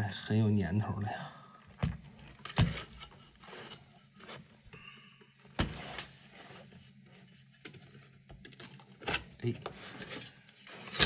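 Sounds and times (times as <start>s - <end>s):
scraping and rubbing: 2.3s - 4.7s, 5.6s - 8.1s, 9.0s - 11.0s.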